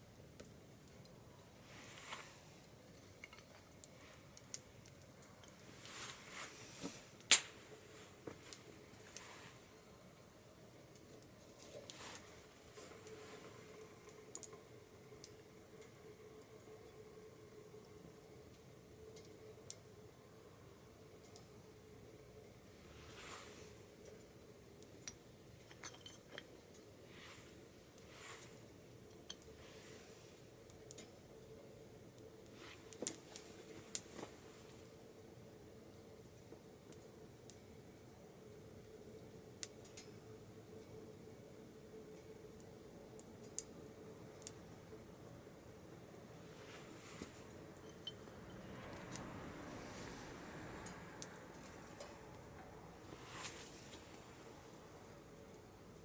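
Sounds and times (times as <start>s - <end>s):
wood fire crackling in a stove: 0.0s - 56.0s
sharp pop of burning wood: 7.2s - 7.6s.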